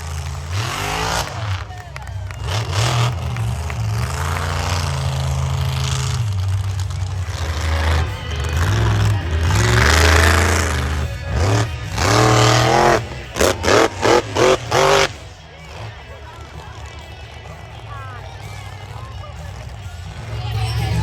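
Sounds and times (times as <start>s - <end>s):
monster truck engine revving: 0.0s - 21.0s.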